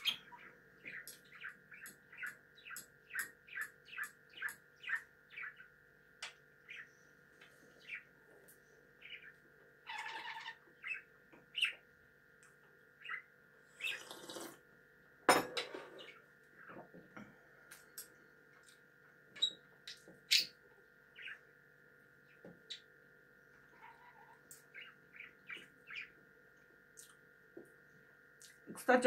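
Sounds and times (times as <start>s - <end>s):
pet bird chirping: 0.0s - 7.1s, 7.7s - 8.2s, 9.0s - 11.9s, 13.0s - 14.4s, 19.4s - 21.5s, 22.3s - 22.9s, 23.7s - 26.2s
bird squawk: 9.0s - 11.8s, 23.7s - 26.2s.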